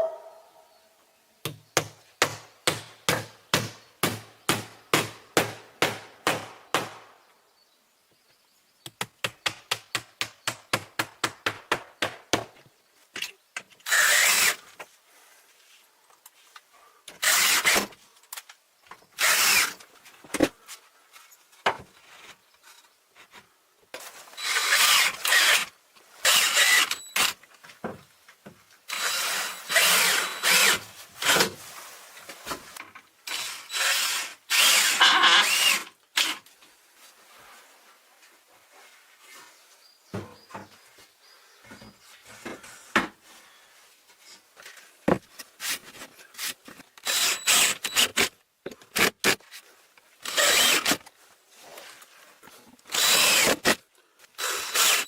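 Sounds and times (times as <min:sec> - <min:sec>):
power tool working into wood: 0:19.2 - 0:19.8, 0:24.4 - 0:27.4, 0:28.9 - 0:31.5, 0:33.3 - 0:36.4, 0:47.0 - 0:48.3, 0:50.2 - 0:51.0, 0:52.9 - 0:53.8, 0:54.4 - 0:55.0.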